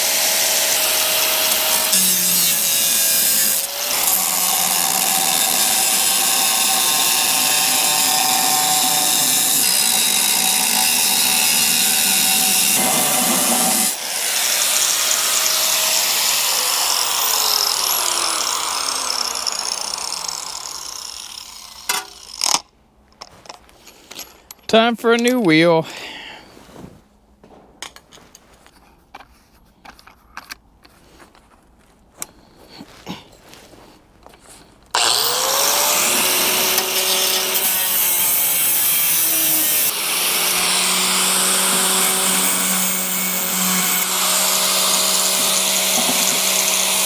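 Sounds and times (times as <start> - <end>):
angle grinder cutting metal: 0.0 - 22.6, 35.0 - 47.0.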